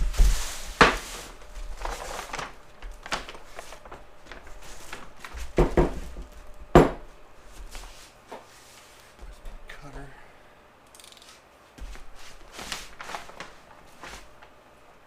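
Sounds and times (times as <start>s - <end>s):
paper rustling and crinkling: 0.0s - 6.4s, 11.8s - 14.6s.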